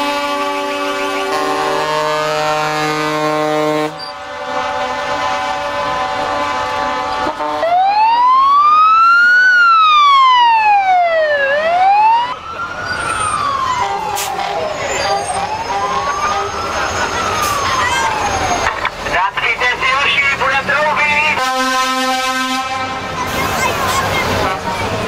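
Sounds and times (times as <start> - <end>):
truck air horns blaring: 0.0 - 8.0, 13.6 - 18.1, 19.2 - 25.0
siren wailing: 7.3 - 22.6.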